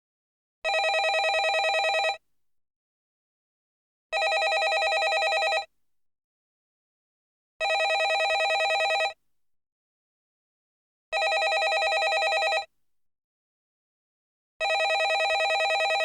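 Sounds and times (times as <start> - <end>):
landline telephone ringing: 0.7 - 2.2, 4.2 - 5.7, 7.6 - 9.2, 11.2 - 12.7, 14.6 - 16.0.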